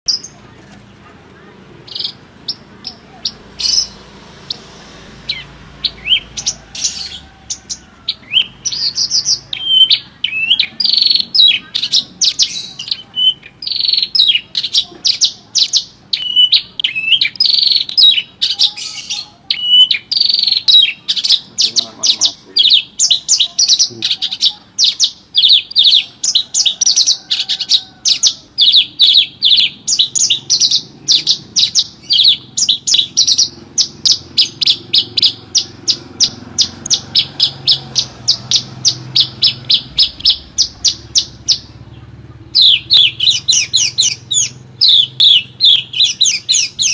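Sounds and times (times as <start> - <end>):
bird chirps and whistles: 8.1 - 26.8, 28.1 - 41.7, 42.6 - 46.9.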